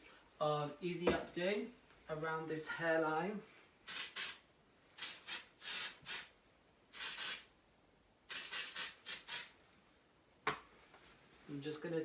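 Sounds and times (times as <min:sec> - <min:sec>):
hairspray hissing in short bursts: 0:03.9 - 0:04.4, 0:05.0 - 0:06.3, 0:06.9 - 0:07.5, 0:08.3 - 0:09.6.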